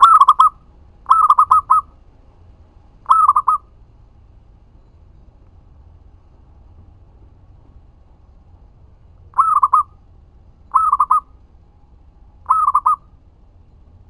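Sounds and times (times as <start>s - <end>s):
dove cooing: 0.0s - 2.0s, 3.0s - 3.7s, 9.3s - 10.0s, 10.7s - 11.4s, 12.4s - 13.1s.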